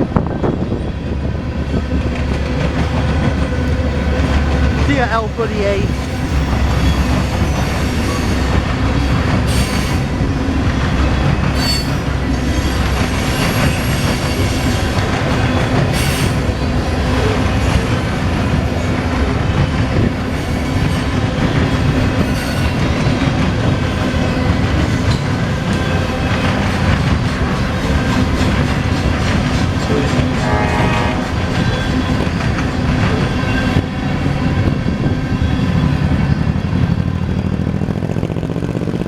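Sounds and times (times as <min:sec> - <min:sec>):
freight train wheels rumbling: 0:00.0 - 0:39.0
wheel squeal: 0:11.6 - 0:14.7.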